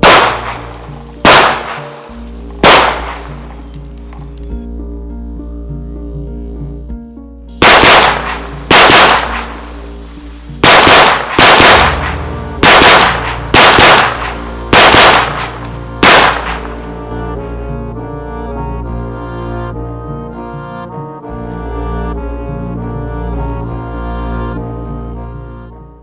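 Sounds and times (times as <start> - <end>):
shotgun shots: 0.0 - 3.7, 7.6 - 17.0
background music: 0.0 - 26.0.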